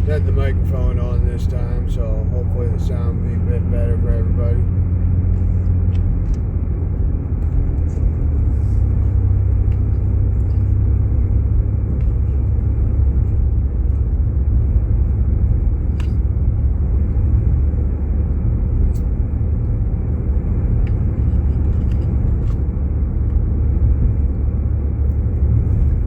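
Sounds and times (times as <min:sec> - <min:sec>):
road rumble inside moving car: 0:00.0 - 0:26.0.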